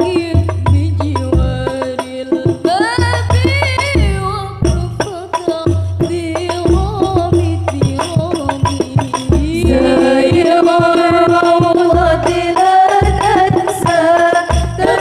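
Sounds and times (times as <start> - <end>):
bass drum beats: 0.0 - 1.8, 2.5 - 5.1, 5.7 - 15.0
frame drums: 0.0 - 15.0
voices singing: 9.3 - 15.0.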